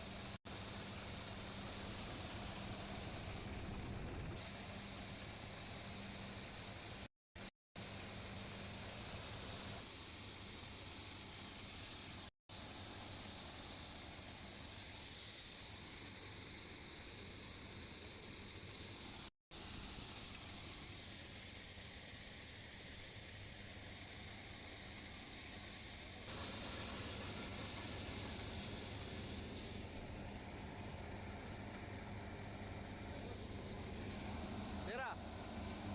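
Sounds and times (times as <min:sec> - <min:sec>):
combine harvester cutting crops: 0:26.3 - 0:35.9.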